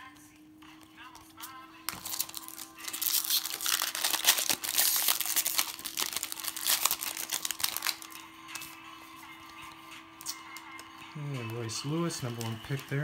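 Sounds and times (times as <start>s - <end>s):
foil wrapper crinkling: 1.9s - 8.2s.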